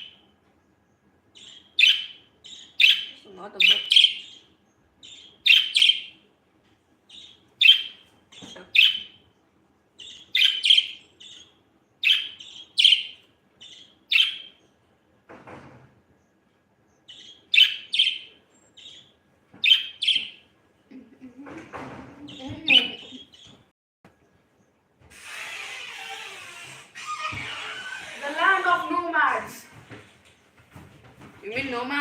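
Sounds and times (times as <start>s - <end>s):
budgerigar chirping: 1.3s - 6.2s, 7.1s - 9.3s, 10.0s - 14.6s, 17.0s - 20.4s, 22.3s - 23.6s.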